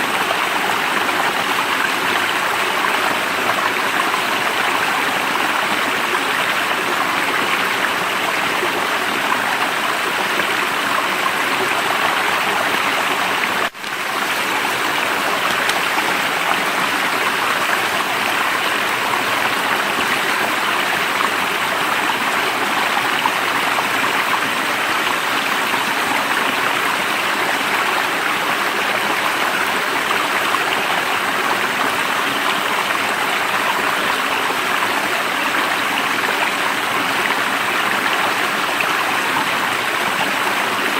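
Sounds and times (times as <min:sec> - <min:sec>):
stream of running water: 0:00.0 - 0:40.9.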